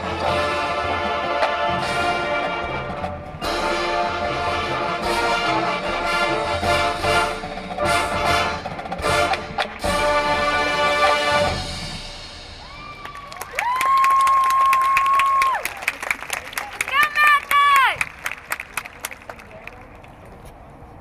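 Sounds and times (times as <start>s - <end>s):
brass chords: 0.0s - 12.6s
low percussion: 0.0s - 15.4s.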